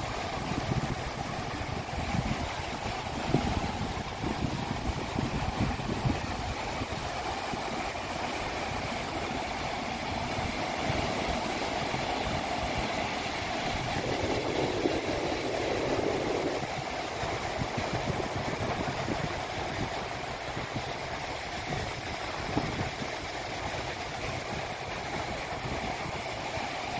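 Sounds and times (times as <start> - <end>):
engine-like drone: 0.0 - 26.9
ocean surf: 0.0 - 26.9
wind buffeting microphone: 0.0 - 26.9.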